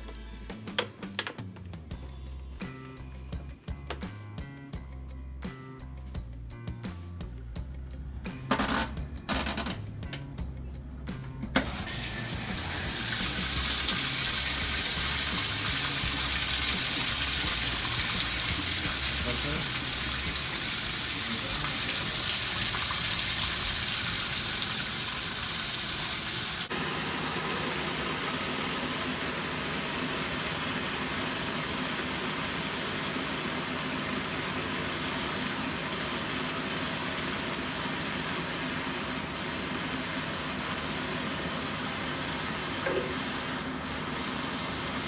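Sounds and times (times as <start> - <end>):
water rushing into washing machine: 11.6 - 45.0.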